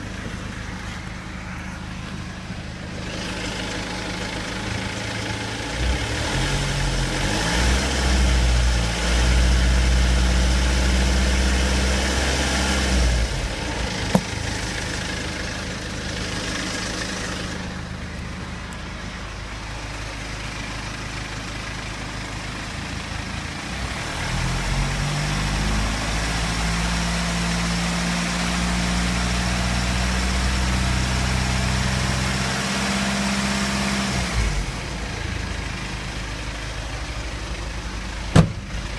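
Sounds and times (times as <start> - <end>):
diesel engine idling and revving: 0.0 - 38.9.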